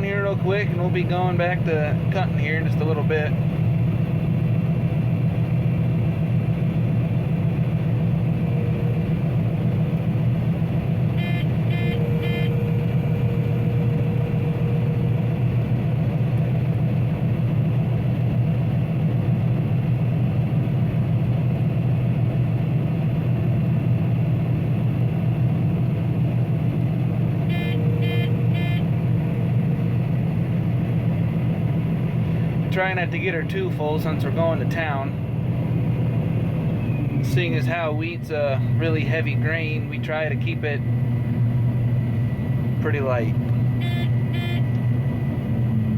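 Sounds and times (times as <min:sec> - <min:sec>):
combine harvester running: 0:00.0 - 0:45.9
short high beeps: 0:27.5 - 0:28.9, 0:43.8 - 0:44.7.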